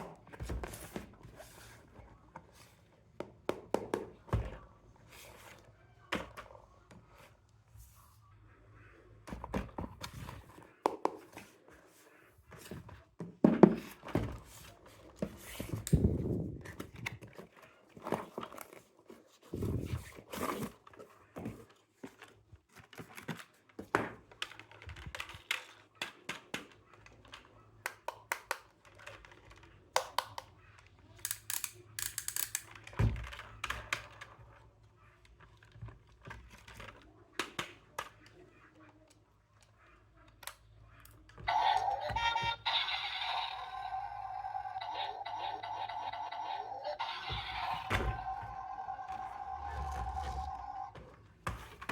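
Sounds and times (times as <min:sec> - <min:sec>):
toy clicks and knocks: 0:31.2 - 0:32.9.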